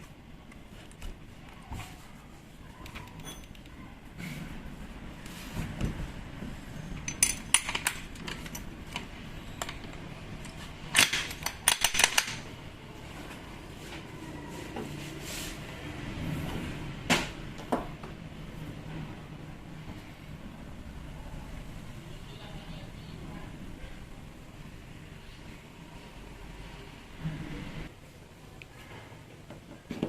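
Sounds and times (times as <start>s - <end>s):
metal tools clinking on workbench: 7.0s - 8.7s.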